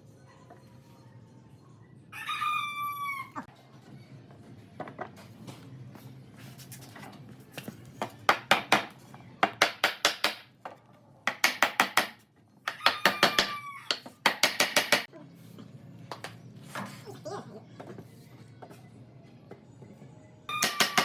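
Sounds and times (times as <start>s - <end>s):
rooster crowing: 2.1s - 3.5s, 12.7s - 14.0s
rapid sharp knocks: 14.3s - 15.1s.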